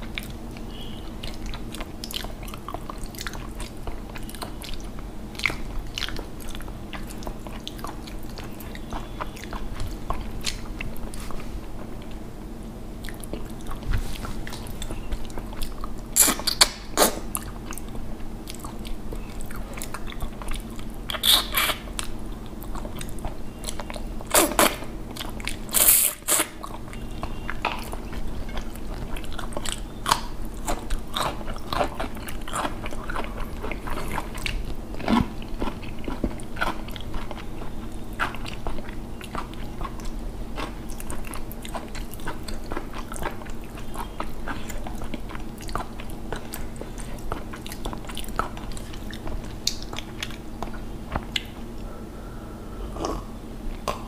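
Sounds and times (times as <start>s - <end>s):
wet chewing and smacking: 0.0s - 12.3s, 13.0s - 51.9s
faint steady hum: 0.0s - 54.0s.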